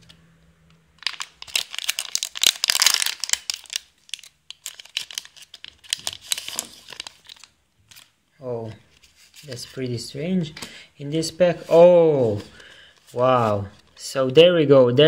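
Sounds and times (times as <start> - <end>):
foil pack crinkling and tearing: 1.0 - 8.1.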